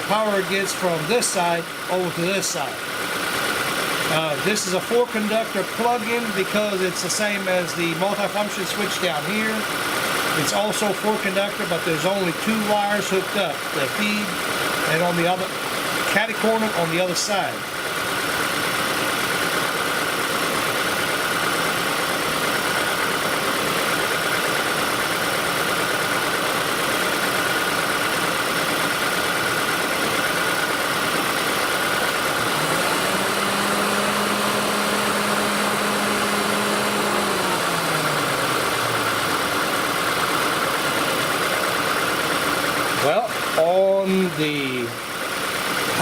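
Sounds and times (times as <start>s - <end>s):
car engine running: 0.0s - 46.0s
steady high whine: 10.4s - 46.0s.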